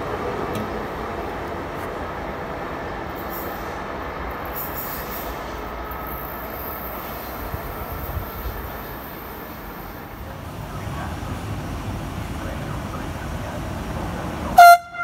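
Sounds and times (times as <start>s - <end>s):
electric train wheels on rail: 0.0s - 15.0s.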